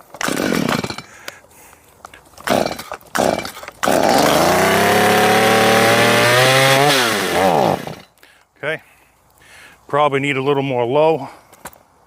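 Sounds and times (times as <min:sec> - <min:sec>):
chainsaw engine starting and running: 0:00.1 - 0:01.2, 0:02.4 - 0:08.1.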